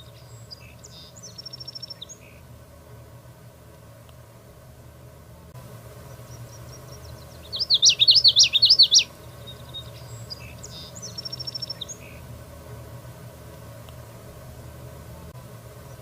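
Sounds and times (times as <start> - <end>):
bird singing rolling notes: 0.0 - 2.6, 5.8 - 12.8
low steady hum: 0.0 - 16.0.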